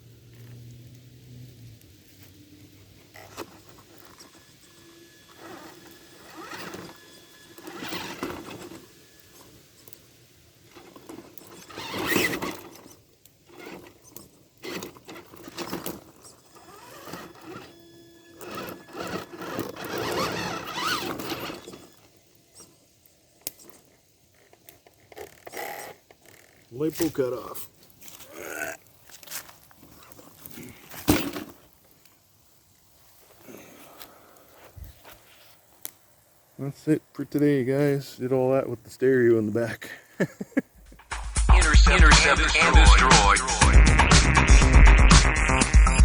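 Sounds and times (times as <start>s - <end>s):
rc truck electric motor whining: 0.3s - 27.4s.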